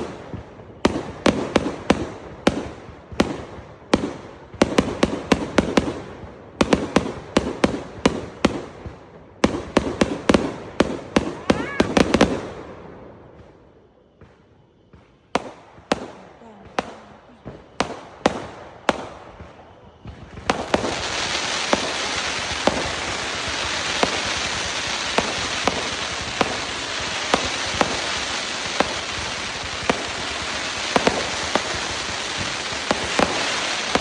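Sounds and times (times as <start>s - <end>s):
firework bangs: 0.0s - 34.0s
fireworks crackling hiss: 0.0s - 34.0s
firework pops: 13.4s - 34.0s.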